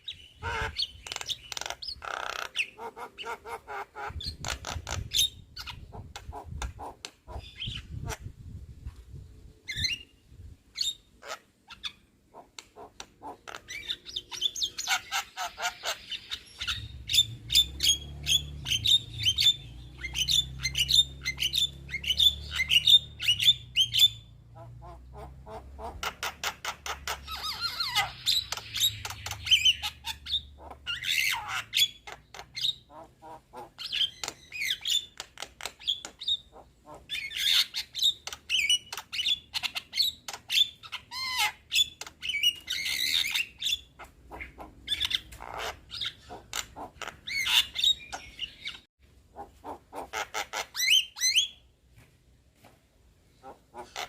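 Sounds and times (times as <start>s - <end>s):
bird chattering and singing: 0.0s - 8.3s, 9.7s - 51.6s, 53.3s - 54.0s.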